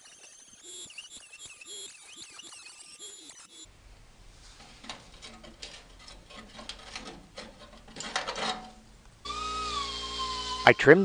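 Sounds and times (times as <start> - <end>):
sheet metal scraping and clicking: 4.6 - 8.8.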